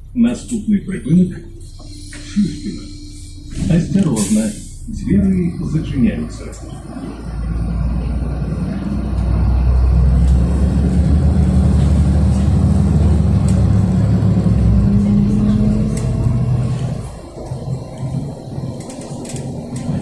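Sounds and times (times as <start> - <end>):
bus diesel engine accelerating: 0.0 - 20.0.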